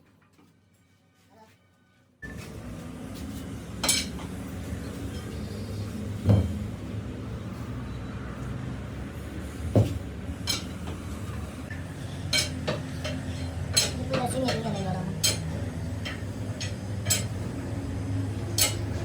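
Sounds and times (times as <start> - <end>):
low machine hum: 2.2 - 19.0
metal tools clinking: 12.3 - 17.5, 18.6 - 19.0.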